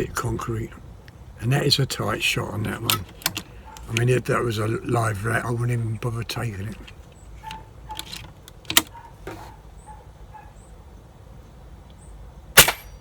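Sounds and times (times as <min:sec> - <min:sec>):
air rifle shot: 0:12.6 - 0:13.0.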